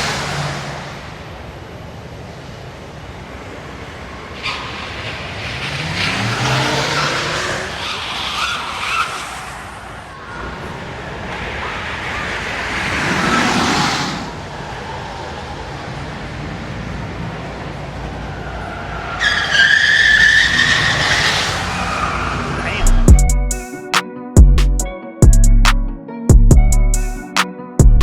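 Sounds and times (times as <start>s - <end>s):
electric car accelerating: 0.0s - 23.1s
tyres squealing: 18.8s - 23.1s.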